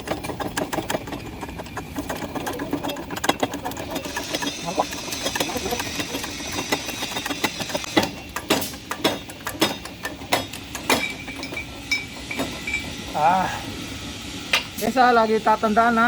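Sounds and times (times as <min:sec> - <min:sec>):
metal knocks and clinks: 0:00.0 - 0:13.1.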